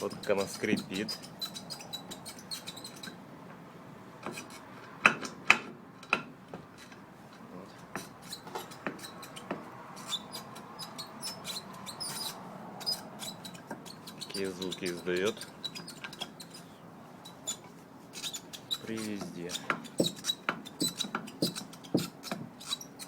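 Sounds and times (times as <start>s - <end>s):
universal joint squeaking and clicking: 0.0s - 3.2s, 4.2s - 23.0s
sharp metal knocks: 19.2s - 22.6s.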